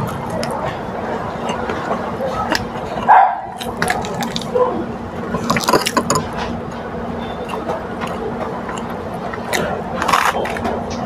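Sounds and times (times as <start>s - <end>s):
low steady hum: 0.0s - 11.0s
lettuce crunching while chewed: 2.3s - 4.8s, 7.5s - 11.0s.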